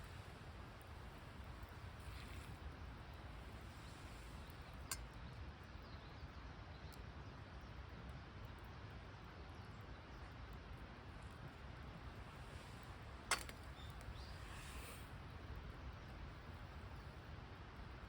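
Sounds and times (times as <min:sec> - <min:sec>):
outdoor background noise: 0:00.0 - 0:18.0
sharp click: 0:13.3 - 0:14.3.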